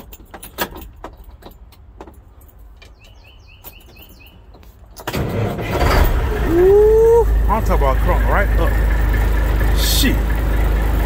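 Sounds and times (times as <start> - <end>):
keys jangling: 0.0 - 5.1.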